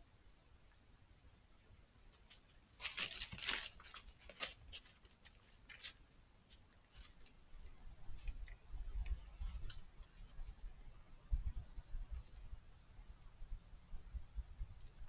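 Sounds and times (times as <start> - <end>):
wind rumble on microphone: 7.7 - 15.0.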